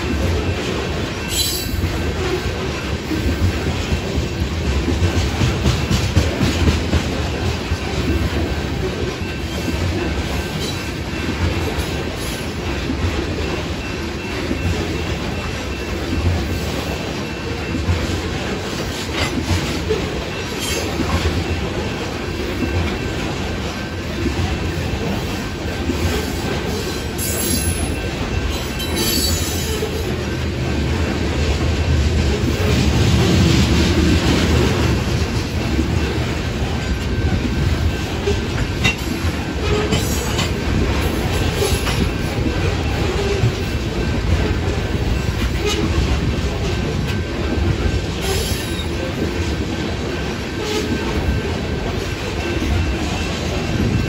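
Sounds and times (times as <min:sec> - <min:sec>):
train cars rumbling past: 0:00.0 - 0:54.0
wheels clicking over rail joints: 0:00.0 - 0:54.0
wheel squeals: 0:01.2 - 0:02.5.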